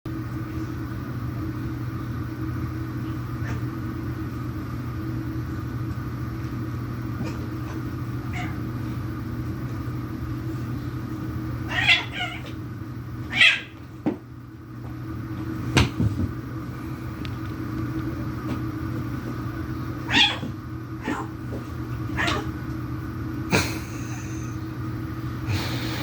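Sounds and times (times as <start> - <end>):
steady low hum: 0.1 - 26.0
cats hissing and yowling: 7.2 - 8.7, 11.6 - 12.6, 13.3 - 13.8, 20.0 - 21.4, 22.1 - 22.6.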